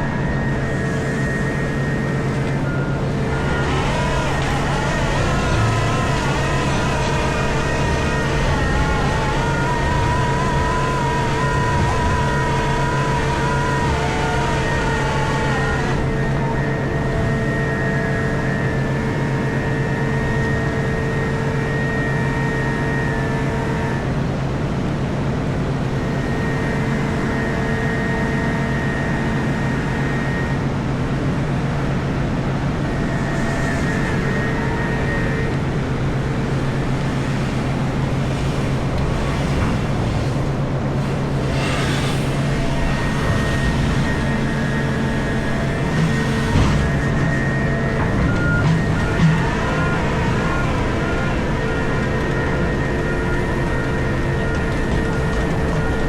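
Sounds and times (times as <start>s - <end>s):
excavator engine drone: 0.0s - 56.0s
high whining tones: 0.0s - 56.0s
hissing surges: 0.2s - 18.6s, 32.7s - 55.2s.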